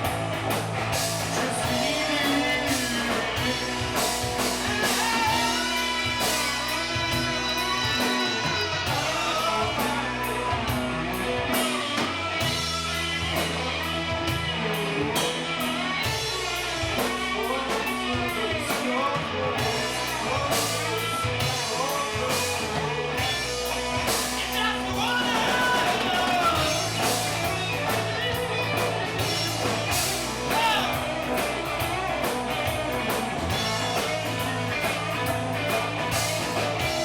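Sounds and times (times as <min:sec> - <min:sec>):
rock band playing: 0:00.0 - 0:37.0
steady drum beat: 0:00.0 - 0:37.0
person singing: 0:01.4 - 0:10.8.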